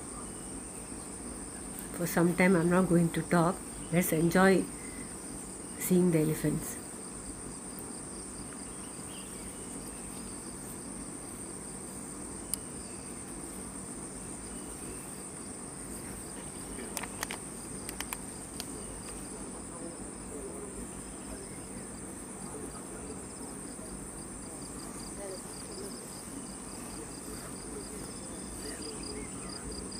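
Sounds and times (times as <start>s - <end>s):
insects chirping: 0.0s - 29.9s
sharp clicks: 16.9s - 19.2s.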